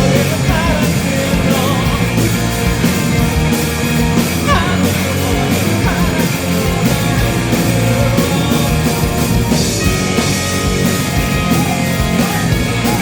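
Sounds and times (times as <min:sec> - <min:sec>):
bass guitar: 0:00.0 - 0:13.0
drum kit: 0:00.0 - 0:13.0
electric guitar: 0:00.0 - 0:13.0.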